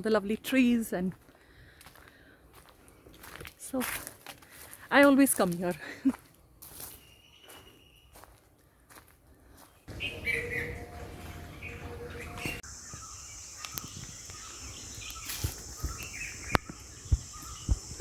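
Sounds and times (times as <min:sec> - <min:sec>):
birds chirping and calling: 0:09.6 - 0:18.0.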